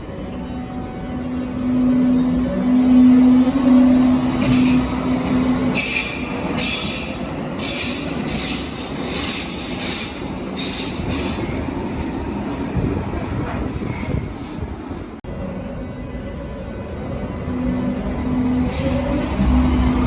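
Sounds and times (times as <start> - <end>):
train running rumble: 1.6 - 15.2
wheels hissing on rails: 4.4 - 11.5.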